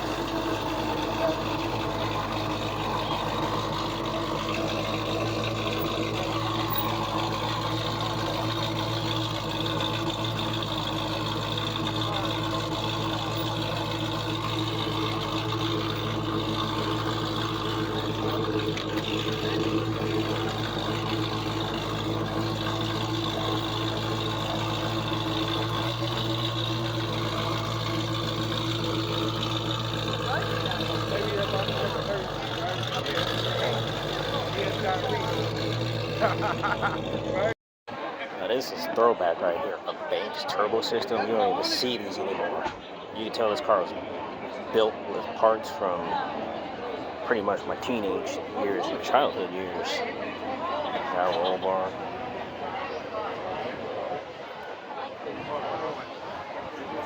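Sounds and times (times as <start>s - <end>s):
motor running steadily: 0.0s - 37.6s
outdoor background noise: 0.0s - 57.0s.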